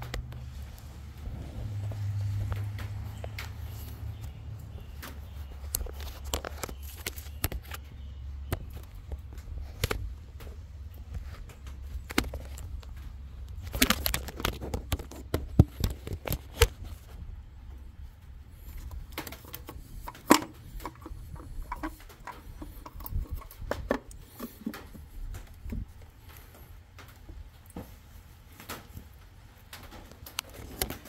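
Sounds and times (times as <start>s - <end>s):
rustling: 0.0s - 7.9s, 8.6s - 31.0s
plastic and metal parts knocking: 18.6s - 26.0s.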